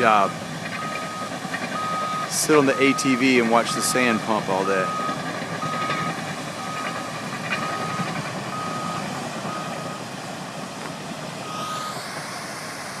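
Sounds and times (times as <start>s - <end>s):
machinery noise: 0.0s - 13.0s
backup alarm beeping: 0.8s - 3.4s, 4.8s - 7.0s, 7.6s - 10.0s, 11.4s - 12.4s
hiss: 11.5s - 13.0s.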